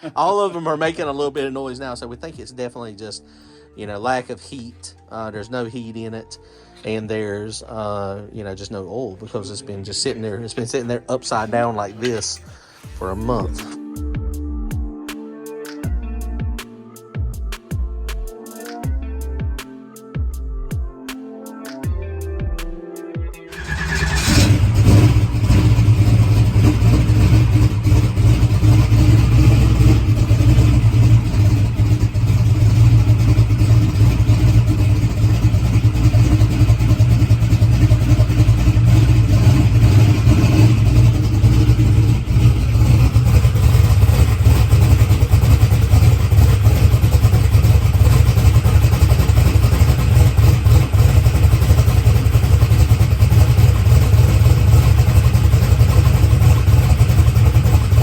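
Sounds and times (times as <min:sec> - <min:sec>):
engine valvetrain noise: 0:23.5 - 0:58.0
engine idling loudly: 0:23.6 - 0:58.0.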